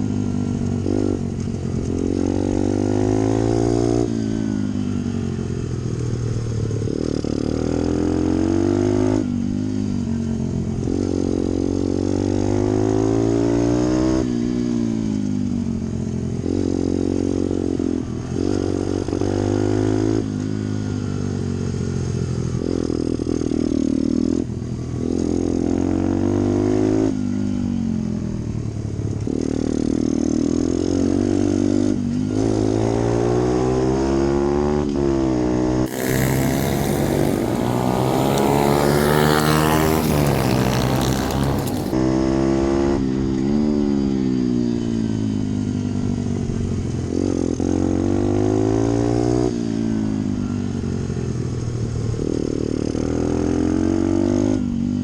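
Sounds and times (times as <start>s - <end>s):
motorbike engine revving: 35.8s - 42.0s.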